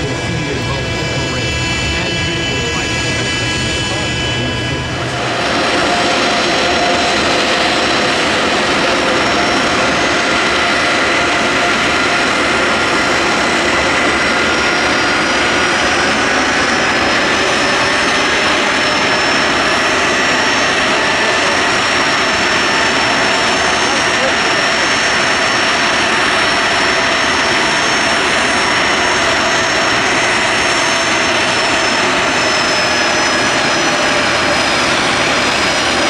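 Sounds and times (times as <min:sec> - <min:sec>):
loud jet engine noise: 0:00.0 - 0:36.0.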